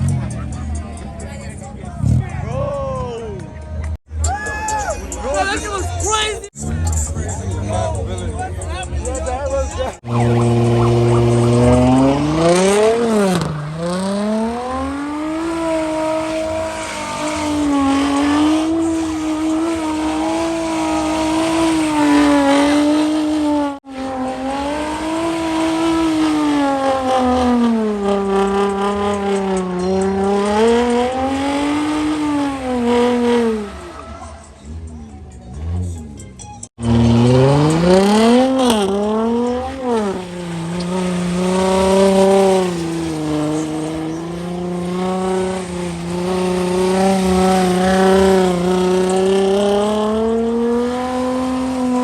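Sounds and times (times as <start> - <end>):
car engine revving high: 9.8 - 36.2, 36.8 - 52.0
tyres squealing: 24.8 - 52.0.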